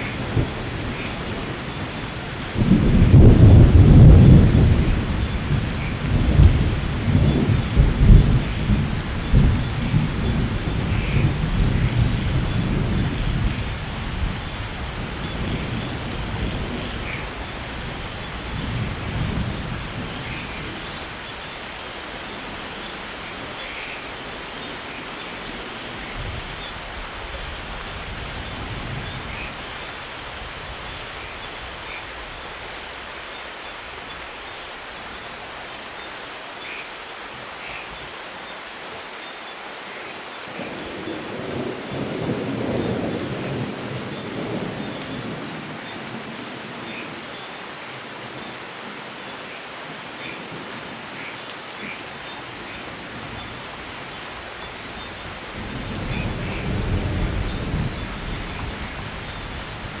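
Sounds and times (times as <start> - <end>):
steady rain: 0.0 - 60.0
thunder rolling: 2.6 - 14.4.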